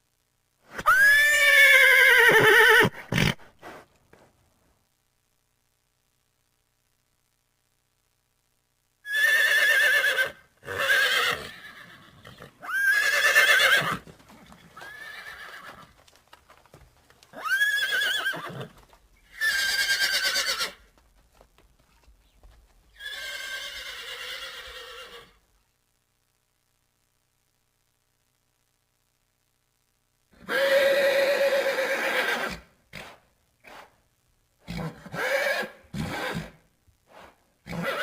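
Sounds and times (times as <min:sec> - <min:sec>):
horse whinnying: 0:00.8 - 0:03.5, 0:09.1 - 0:15.9, 0:17.3 - 0:20.8, 0:22.9 - 0:25.4, 0:30.4 - 0:33.2, 0:34.6 - 0:36.6, 0:37.6 - 0:38.0.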